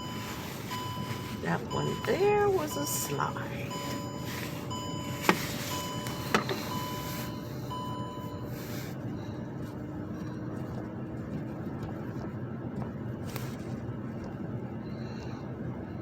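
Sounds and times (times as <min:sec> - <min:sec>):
electronic warning beeps: 0:00.0 - 0:08.6
steady low hum: 0:00.0 - 0:16.0.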